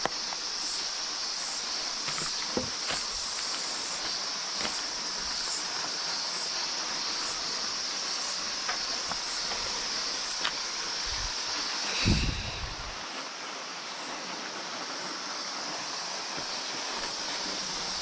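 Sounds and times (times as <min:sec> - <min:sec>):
insects droning: 0:00.0 - 0:18.0
footsteps on dry leaves: 0:01.6 - 0:05.6.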